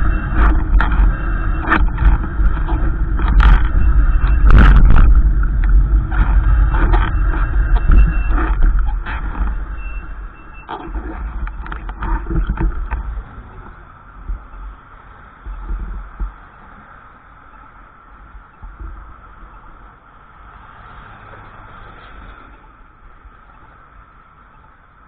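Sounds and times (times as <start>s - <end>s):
wind buffeting microphone: 0.0s - 14.7s.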